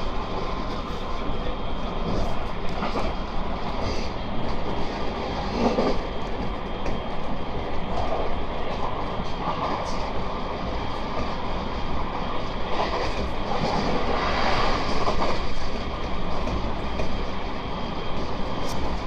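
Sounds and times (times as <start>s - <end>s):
train rattling: 0.0s - 19.0s
train wheels rumbling on rail: 0.0s - 19.0s.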